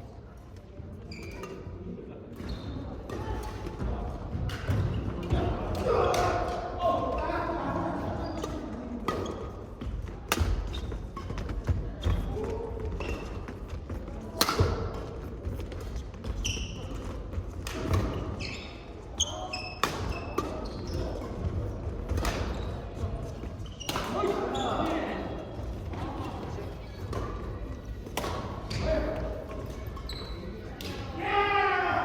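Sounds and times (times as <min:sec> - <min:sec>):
shoe squeaks on floor: 0:01.1 - 0:01.7, 0:02.4 - 0:02.9, 0:16.2 - 0:17.0, 0:18.2 - 0:21.3, 0:22.4 - 0:25.0, 0:29.9 - 0:30.7.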